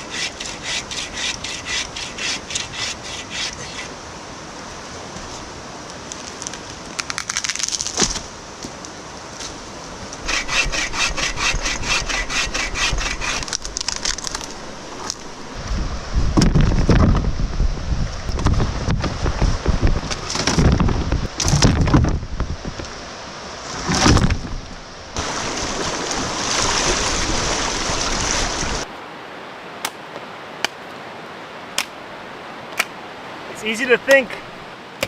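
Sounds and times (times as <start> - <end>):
hand saw cutting wood: 0.0 - 3.9, 10.2 - 13.7.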